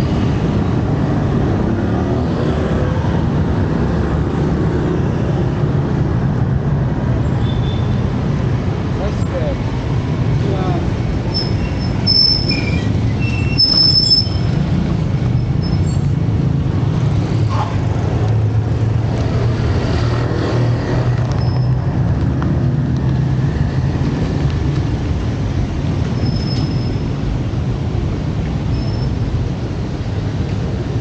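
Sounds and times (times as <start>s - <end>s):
vehicle engines rumbling: 0.0s - 31.0s
short high-pitched squeals: 11.4s - 14.5s.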